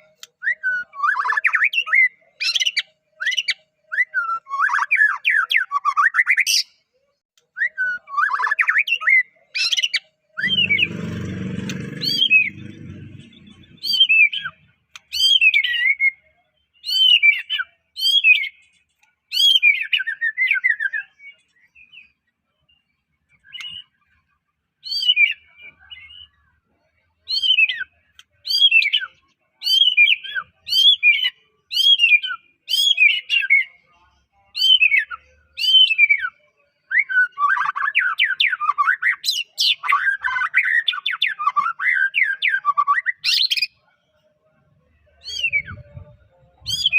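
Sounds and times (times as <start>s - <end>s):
bird singing whistled phrases: 0.4s - 6.5s, 15.1s - 18.6s, 34.6s - 43.6s, 45.2s - 46.0s.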